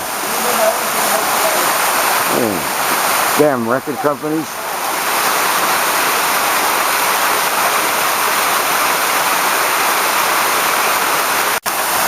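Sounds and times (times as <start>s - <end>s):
waterfall rushing over rock: 0.0s - 12.0s.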